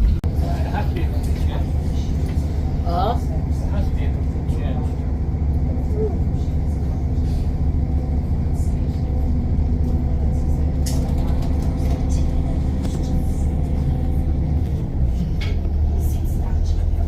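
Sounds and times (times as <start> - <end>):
train rumbling inside carriage: 0.0 - 17.0
faint rattles and clicks: 10.7 - 13.2.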